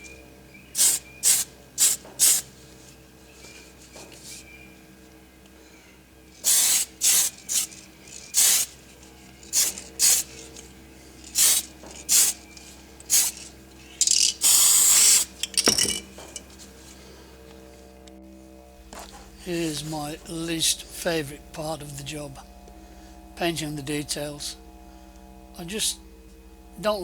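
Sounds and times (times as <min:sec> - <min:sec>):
spray paint hissing: 0:00.7 - 0:02.7, 0:06.3 - 0:16.0.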